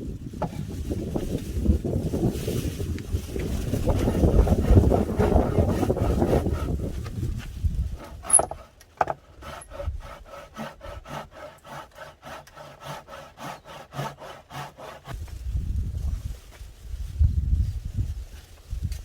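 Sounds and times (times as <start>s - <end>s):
hand saw cutting wood: 3.3s - 15.2s.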